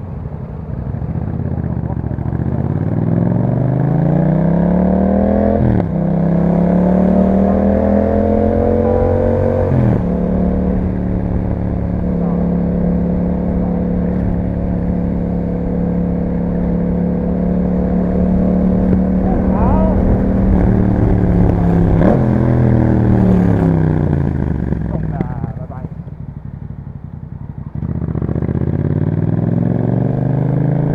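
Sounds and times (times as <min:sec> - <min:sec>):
motorcycle engine accelerating: 0:00.0 - 0:30.9.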